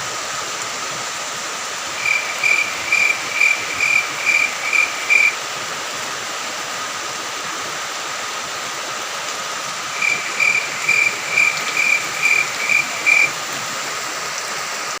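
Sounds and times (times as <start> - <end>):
rain falling: 0.0 - 15.0
cricket chirping: 2.0 - 5.4, 9.9 - 13.4.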